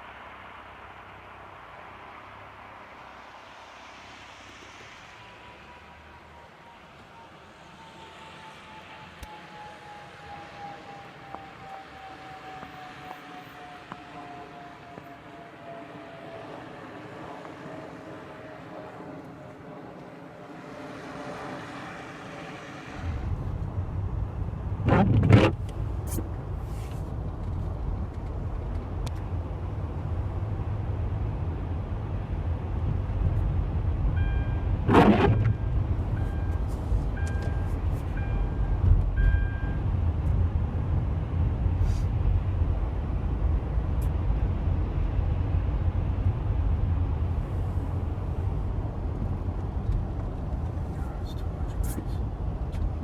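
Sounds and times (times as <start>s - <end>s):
car whine: 0.0s - 53.0s
heavy low rumble: 23.0s - 53.0s.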